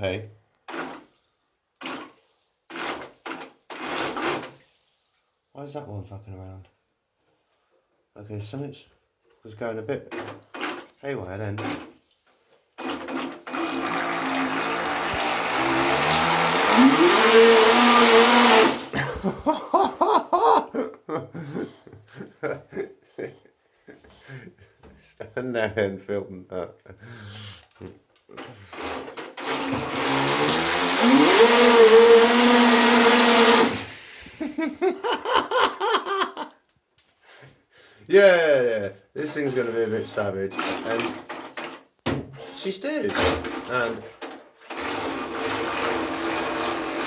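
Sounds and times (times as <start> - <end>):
electric motor whining: 13.4 - 18.9, 29.4 - 33.9
propeller churning water: 13.5 - 18.9.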